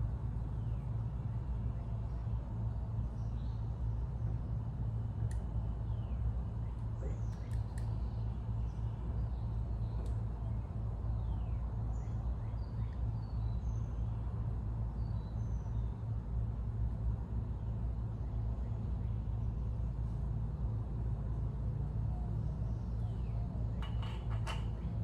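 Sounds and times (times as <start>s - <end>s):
low background rumble: 0.0s - 25.0s.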